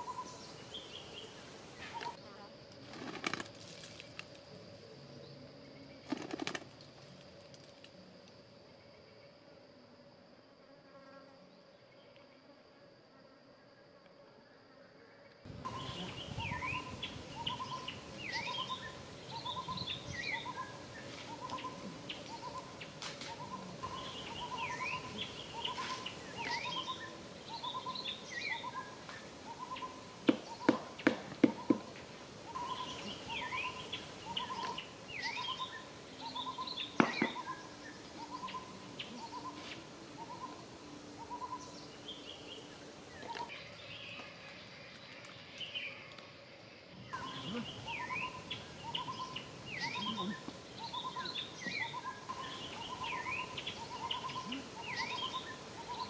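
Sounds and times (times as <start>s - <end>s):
birds chirping and whistling: 15.7s - 30.8s, 32.5s - 40.5s, 47.2s - 56.0s.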